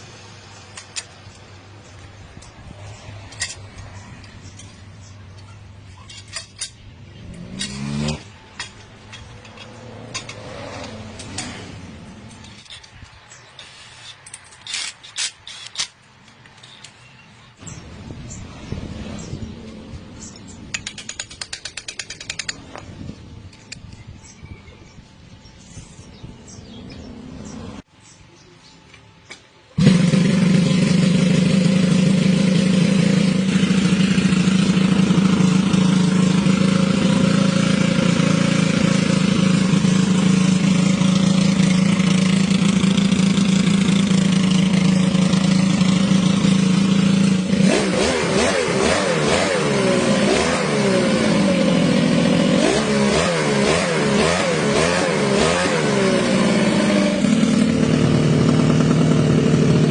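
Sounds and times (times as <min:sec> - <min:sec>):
engine idling and revving: 0:00.0 - 0:13.4, 0:29.8 - 0:59.9.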